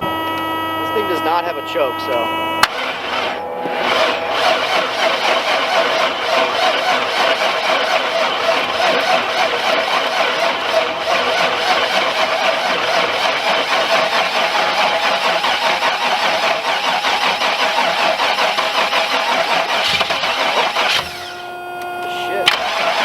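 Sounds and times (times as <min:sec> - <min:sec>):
car engine cranking on starter: 0:02.6 - 0:23.0.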